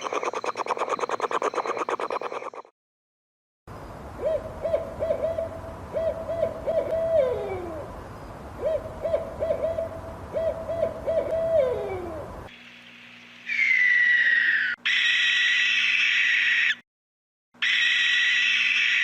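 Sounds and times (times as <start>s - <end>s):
owl hooting: 0.0s - 2.6s, 4.2s - 7.9s, 8.6s - 12.3s, 13.5s - 16.8s, 17.6s - 19.0s.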